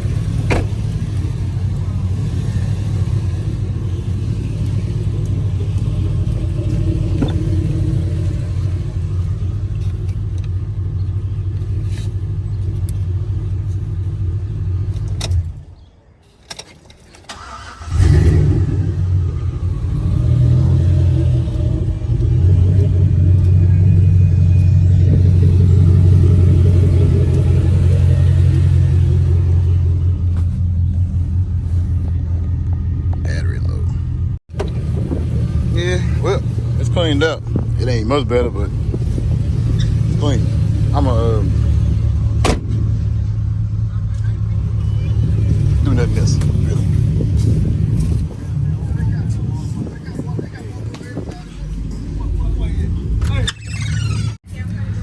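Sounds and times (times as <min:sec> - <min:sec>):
truck engine idling: 0:00.0 - 0:15.8, 0:17.3 - 0:55.0
engine restarting: 0:17.2 - 0:30.0.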